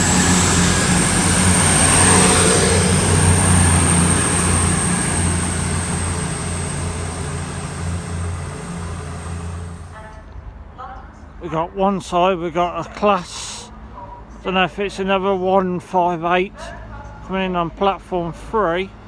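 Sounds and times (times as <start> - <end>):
diesel engines humming: 0.0 - 10.3
train noise: 0.0 - 10.7.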